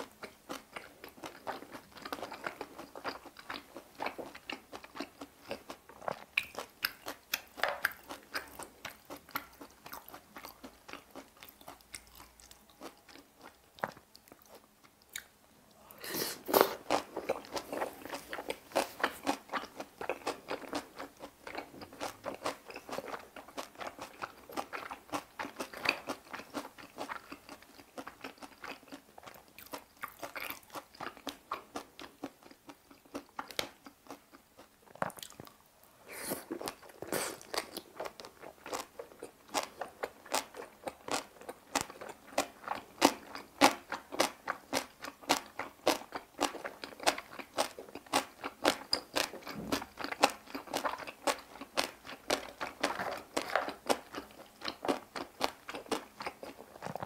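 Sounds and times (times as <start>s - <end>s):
wet crunchy chewing: 16.4s - 57.0s.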